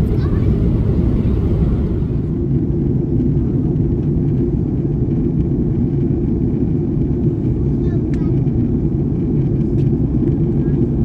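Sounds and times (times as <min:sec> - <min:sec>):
loud low rumble: 0:00.0 - 0:03.3.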